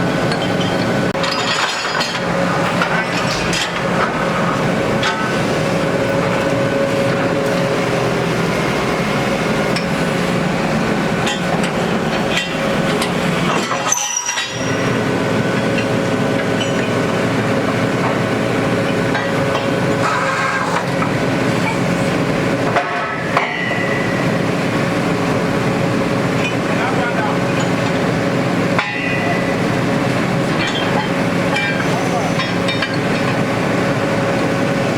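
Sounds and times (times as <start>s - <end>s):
drilling rig engine running: 0.0s - 34.9s
sharp metal knocks: 28.8s - 29.4s.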